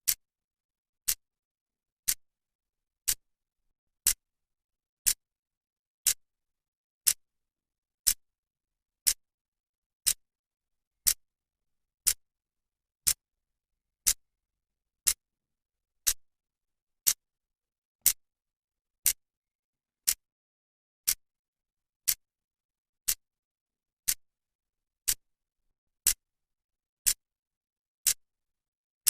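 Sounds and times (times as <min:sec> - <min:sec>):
clock ticking: 0:02.0 - 0:02.2, 0:03.0 - 0:03.2, 0:09.0 - 0:09.2, 0:15.0 - 0:15.2, 0:17.0 - 0:17.2, 0:20.0 - 0:20.3, 0:24.0 - 0:24.2, 0:25.0 - 0:25.2.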